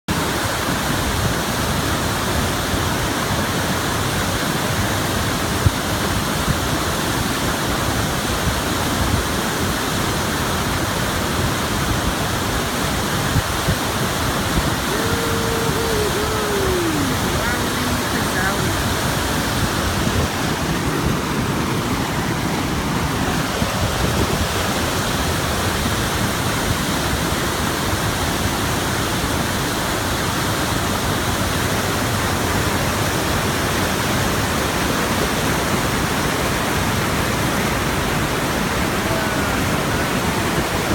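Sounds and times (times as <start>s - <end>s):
waterfall roaring: 0.1s - 40.9s.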